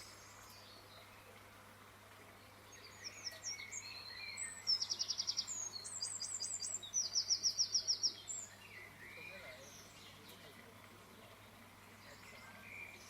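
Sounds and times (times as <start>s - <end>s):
soft bird chirps: 0.0s - 13.0s
songbird trilling and whistling: 2.8s - 10.1s.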